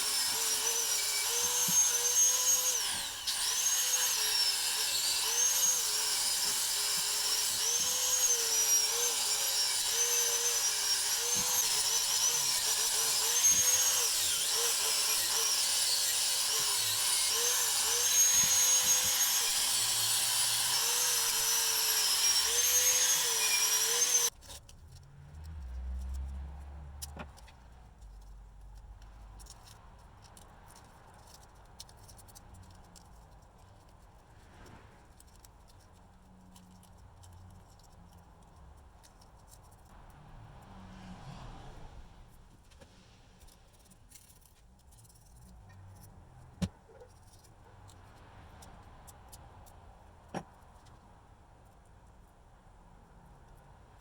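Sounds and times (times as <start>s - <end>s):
power tool motor whining: 0.0s - 24.3s.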